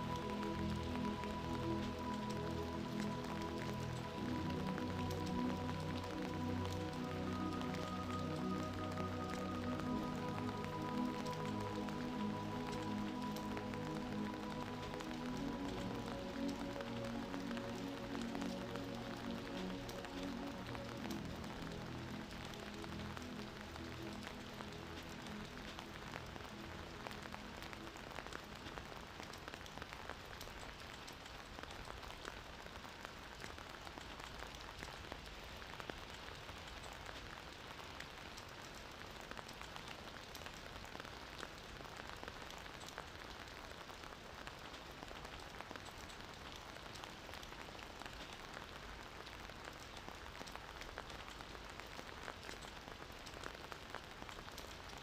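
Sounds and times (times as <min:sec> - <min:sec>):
low musical tones: 0:00.0 - 0:29.6
steady rain: 0:00.0 - 0:55.0.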